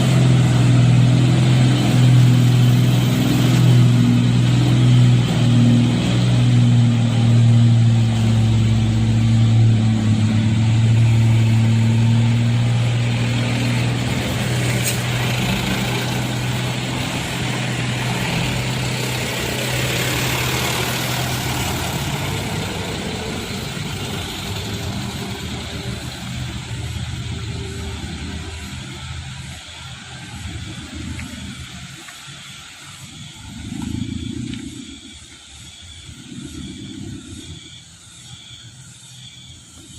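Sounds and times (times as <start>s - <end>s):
road noise: 0.0s - 39.9s
truck engine humming: 0.0s - 39.9s.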